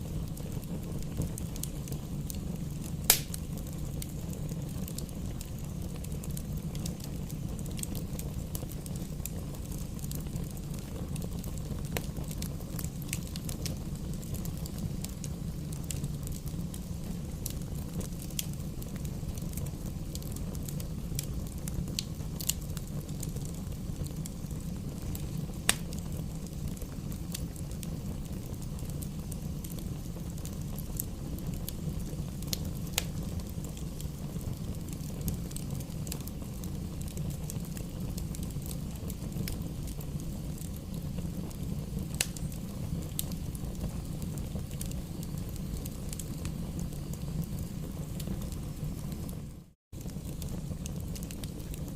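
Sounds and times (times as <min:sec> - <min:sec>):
logs crackling and popping: 0:00.0 - 0:49.4, 0:50.0 - 0:51.9
rumble of fire flames: 0:00.0 - 0:51.9.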